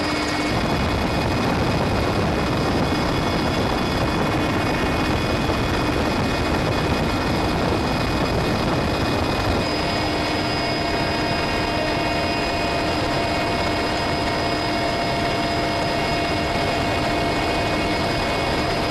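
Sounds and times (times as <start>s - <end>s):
helicopter turbine and rotor noise: 0.0s - 18.9s
helicopter whine: 0.0s - 18.9s.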